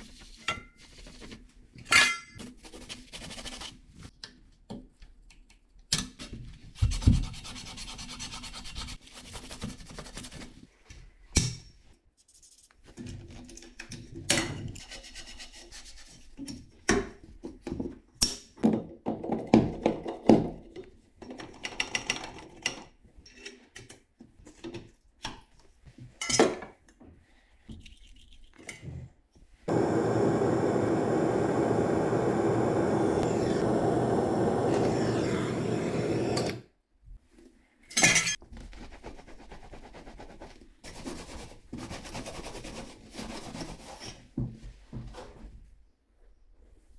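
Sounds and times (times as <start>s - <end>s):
blowtorch hissing: 29.7s - 36.6s.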